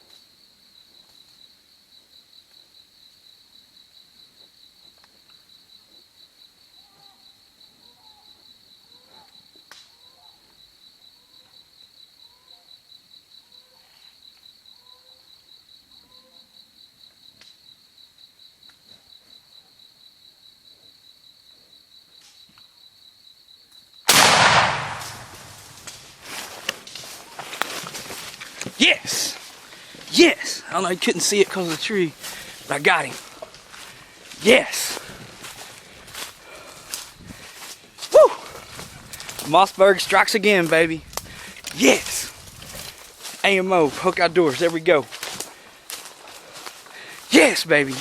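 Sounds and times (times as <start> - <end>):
loud shotgun blast: 24.1 - 26.2.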